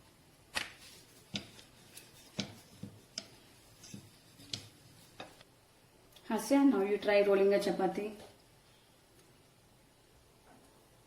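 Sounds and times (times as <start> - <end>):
rolling pin tapping on board: 1.3 - 1.6, 2.2 - 5.4.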